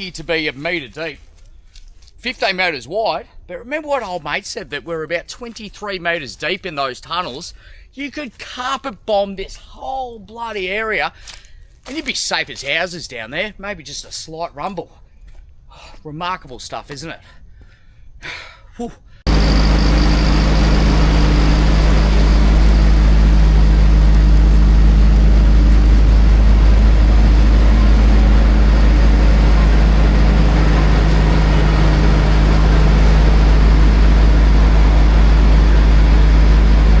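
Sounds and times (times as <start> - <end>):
engine running with low rumble: 19.3 - 37.0.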